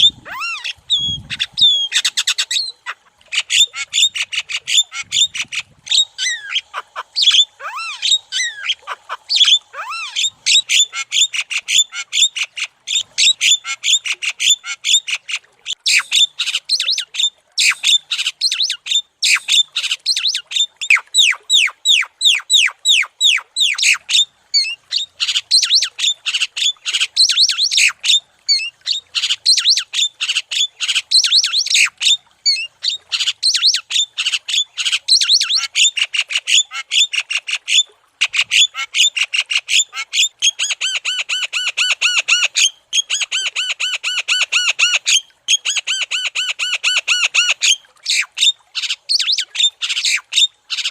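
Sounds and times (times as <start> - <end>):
myna harsh chattering calls: 0.0 - 11.5.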